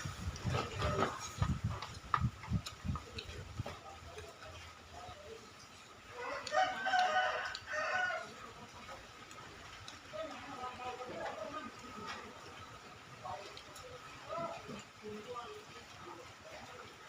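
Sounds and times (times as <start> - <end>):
rooster crowing: 6.1 - 8.5.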